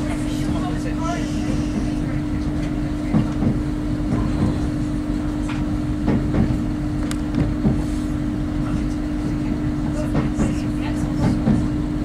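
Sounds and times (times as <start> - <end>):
train engine hum and rumble: 0.0 - 12.0.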